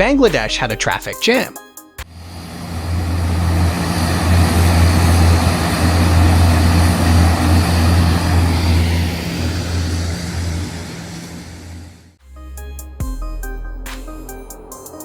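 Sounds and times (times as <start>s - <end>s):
aircraft engines running: 2.0s - 12.2s.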